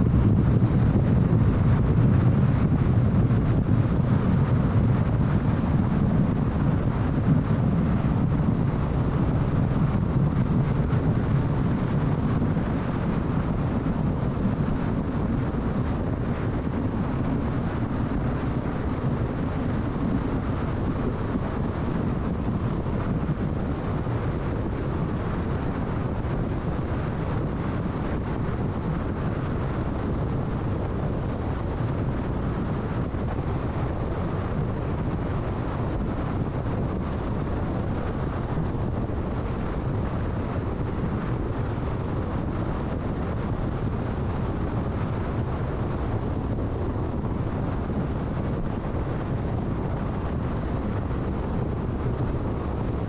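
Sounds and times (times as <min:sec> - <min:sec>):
road and tyre noise: 0:00.0 - 0:53.0
wind rush: 0:00.0 - 0:53.0.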